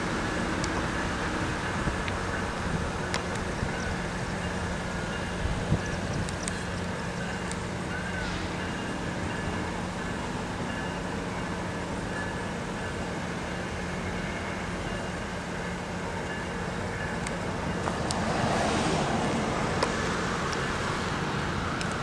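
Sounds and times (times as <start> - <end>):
diesel train engine hum: 0.0 - 22.0
rush of vehicle noise: 17.2 - 22.0.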